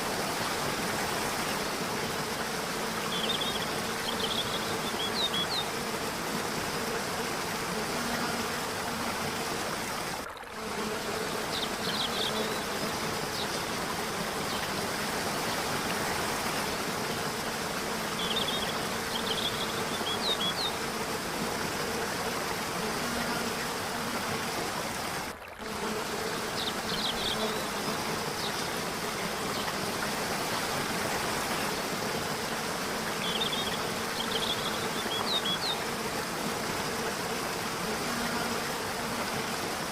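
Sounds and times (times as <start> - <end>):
rush of falling water: 0.0 - 39.9.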